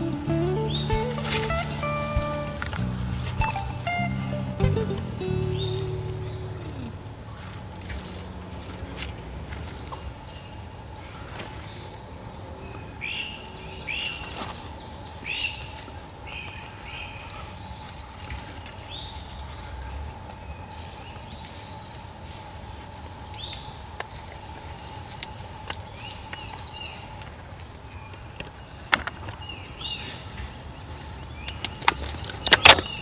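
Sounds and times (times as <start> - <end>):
bird chirping: 0.0 - 8.2.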